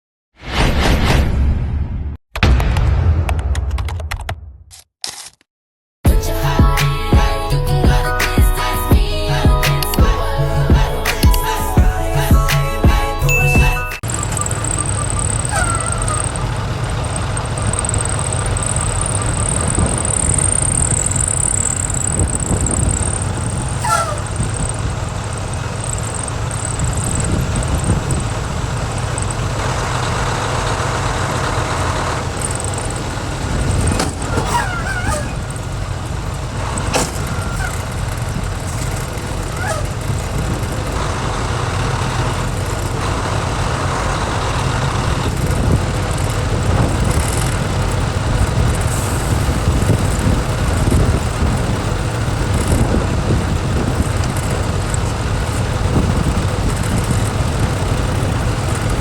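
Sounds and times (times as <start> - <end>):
sharp clicks: 3.3 - 5.5, 9.6 - 10.2
truck engine and road rumble: 6.1 - 59.0.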